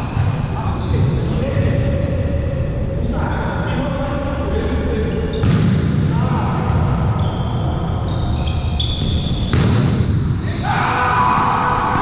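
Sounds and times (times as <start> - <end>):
voices in echoing gym: 0.0 - 12.0
volleyball hitting hard: 5.4 - 6.1, 9.5 - 10.3
shoes squeaking on court: 6.6 - 10.6.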